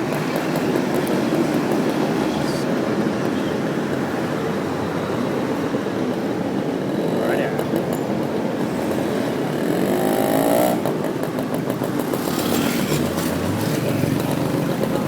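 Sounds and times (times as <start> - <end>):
city traffic: 0.0 - 15.0
motorcycle engine running: 6.4 - 15.0.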